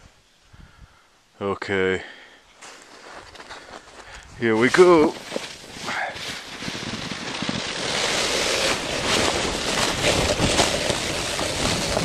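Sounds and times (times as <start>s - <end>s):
snowboard sliding through snow: 4.4s - 12.0s
wind buffeting microphone: 6.4s - 12.0s.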